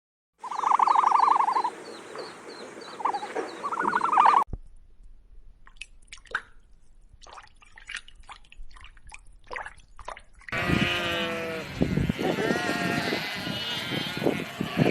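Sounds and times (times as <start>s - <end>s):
sheep bleating: 10.5s - 14.9s.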